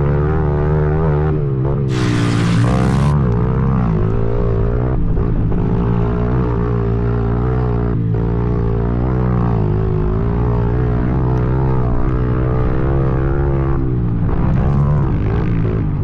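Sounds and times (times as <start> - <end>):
dirt bike engine revving: 1.9 - 3.2.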